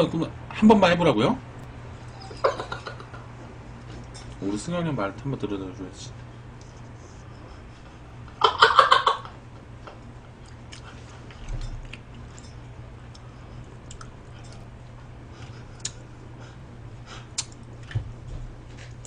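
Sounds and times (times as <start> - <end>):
steady low hum: 0.0 - 19.0
person chewing food: 10.4 - 16.2, 17.1 - 18.0.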